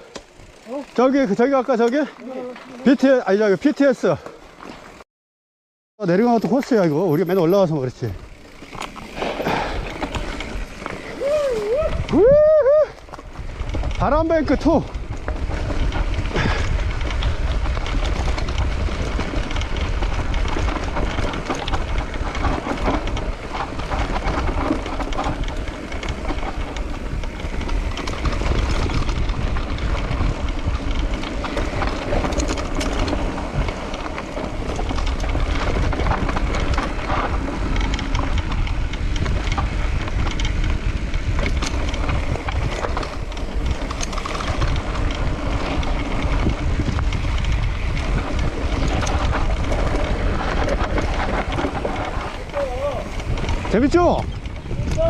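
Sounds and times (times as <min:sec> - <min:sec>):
bike rattles and clicks: 0:00.0 - 0:05.0, 0:06.0 - 0:55.0
bike tyres rumbling on dirt: 0:00.0 - 0:05.0, 0:06.0 - 0:55.0
wind rushing over microphone: 0:09.0 - 0:55.0.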